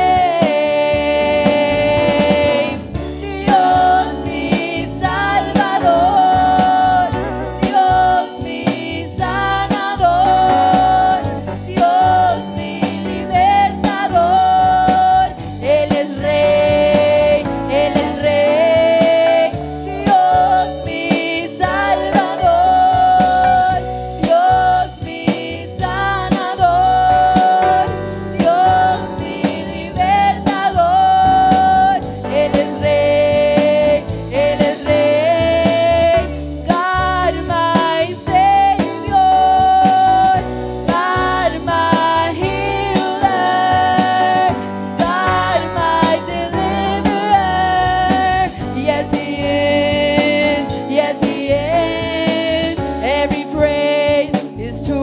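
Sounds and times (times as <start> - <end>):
person singing: 0.0 - 55.0
worship band playing: 0.0 - 55.0.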